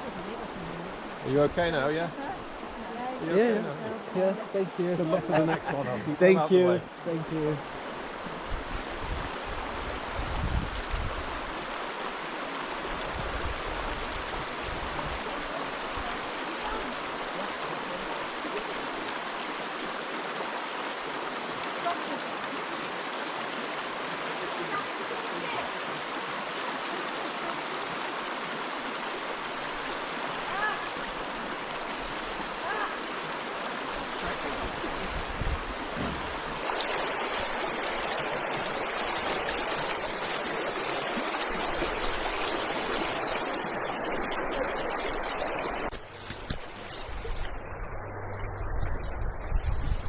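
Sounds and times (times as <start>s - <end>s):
river water rushing over stones: 6.9s - 50.0s
wind rumbling on microphone: 8.0s - 11.9s, 12.8s - 16.8s, 34.0s - 36.7s, 45.9s - 50.0s.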